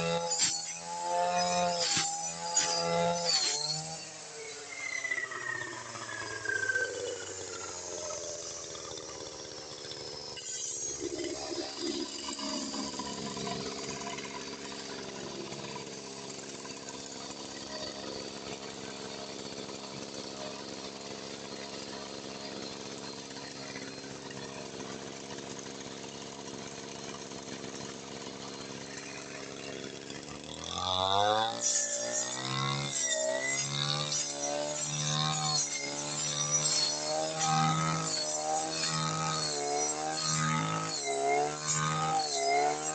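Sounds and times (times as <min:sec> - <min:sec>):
brush cutter engine idling: 0:00.0 - 0:42.9.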